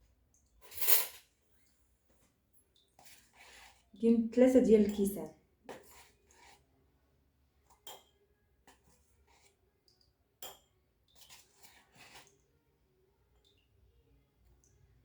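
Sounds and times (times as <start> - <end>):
kitchen utensils scraping and tapping: 0.6 - 1.3, 4.5 - 6.6, 11.2 - 12.3.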